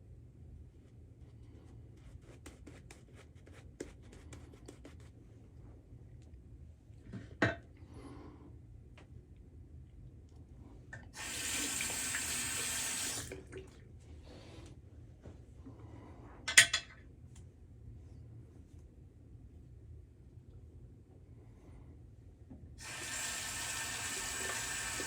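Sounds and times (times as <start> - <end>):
water tap running: 11.2 - 13.4, 22.8 - 25.0.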